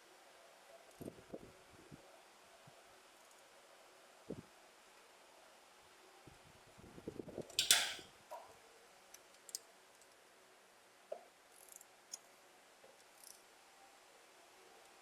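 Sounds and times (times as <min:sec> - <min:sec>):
hand tools clinking on metal: 0:07.6 - 0:08.0.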